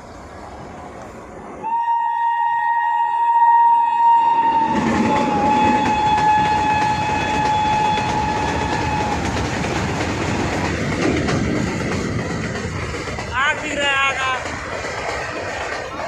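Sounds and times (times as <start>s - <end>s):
train rumbling along track: 0.0s - 16.0s
train horn blast: 1.6s - 9.3s.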